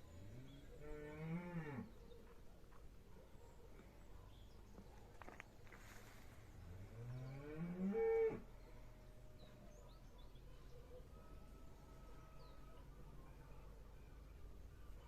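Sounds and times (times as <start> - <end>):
cow mooing: 7.0 - 8.4.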